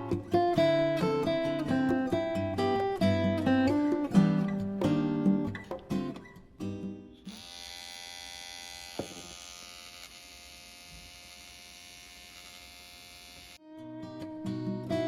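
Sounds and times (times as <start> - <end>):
pet hair trimmer buzzing: 7.3 - 13.6.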